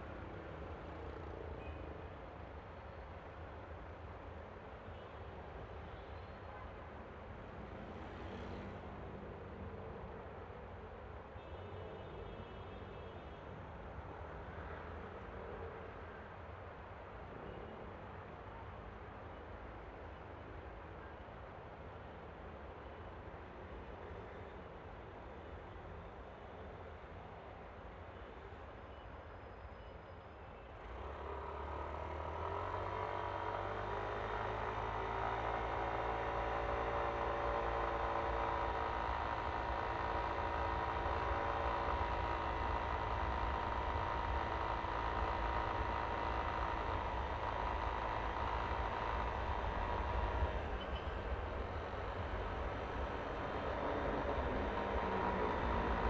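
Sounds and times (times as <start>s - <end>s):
scooter engine accelerating: 30.8s - 56.0s.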